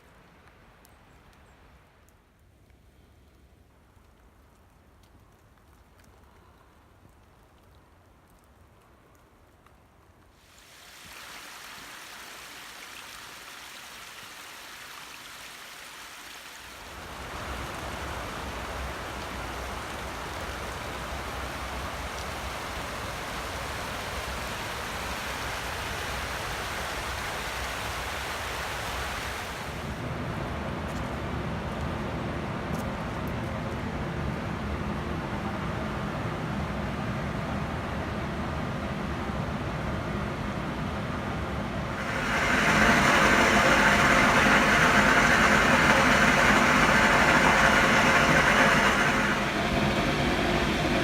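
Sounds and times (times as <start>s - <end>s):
rushing water: 10.3s - 30.2s, 41.6s - 51.0s.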